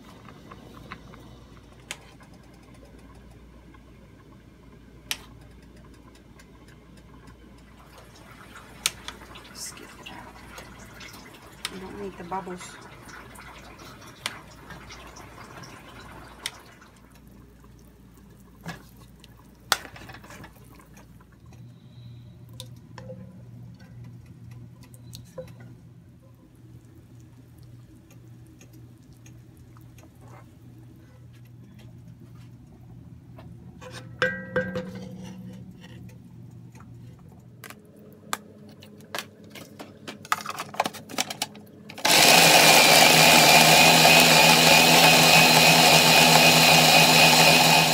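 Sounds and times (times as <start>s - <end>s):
liquid dripping and pouring: 23.7s - 32.8s.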